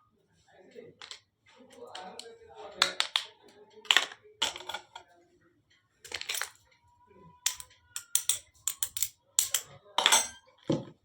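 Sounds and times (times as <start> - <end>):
toy kitchenware clinking: 1.0 - 1.2, 2.8 - 5.0, 6.1 - 6.7, 7.4 - 10.7.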